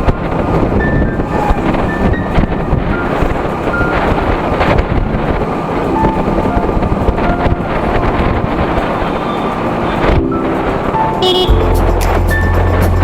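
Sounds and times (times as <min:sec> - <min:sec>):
wind over microphone: 0:00.0 - 0:13.0
motorcycle engine running: 0:11.2 - 0:13.0.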